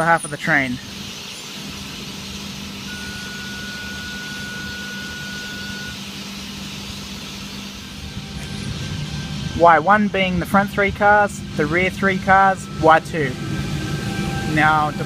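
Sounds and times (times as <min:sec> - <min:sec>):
airy hiss from train equipment: 0:00.0 - 0:09.4
electric train humming: 0:00.0 - 0:15.0
steady high tone: 0:00.0 - 0:15.0.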